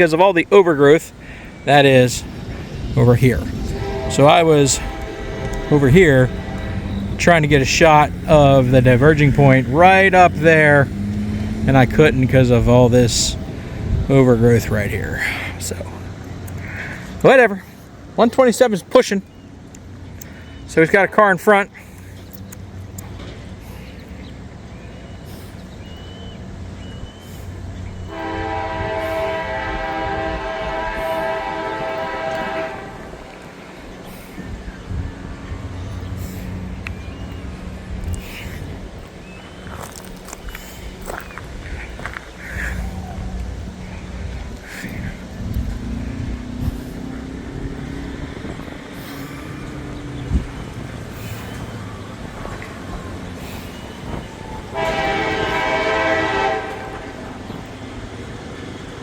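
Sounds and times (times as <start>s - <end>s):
vehicle engine rumbling: 0.0s - 59.0s
locomotive air horn chord: 3.1s - 10.0s, 28.0s - 33.4s, 54.5s - 58.0s.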